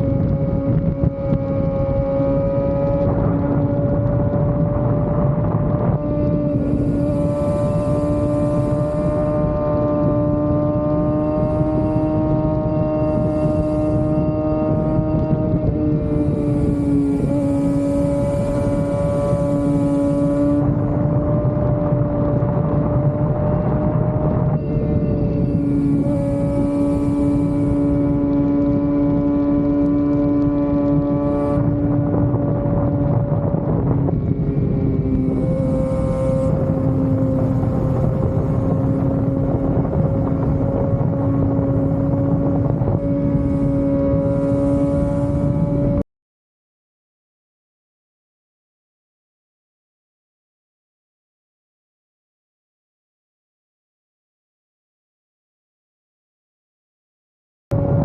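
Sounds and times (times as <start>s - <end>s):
motorcycle engine running: 0.0s - 46.0s, 57.7s - 58.0s
wind and road noise: 0.0s - 46.1s, 57.7s - 58.0s.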